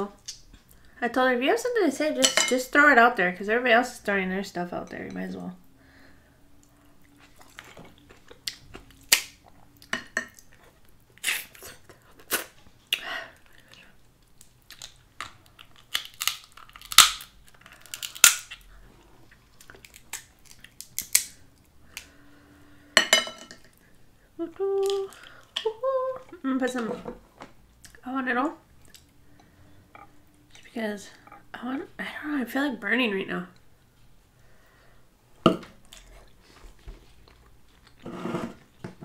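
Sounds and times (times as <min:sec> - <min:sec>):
wet chewing: 0:06.6 - 0:12.6.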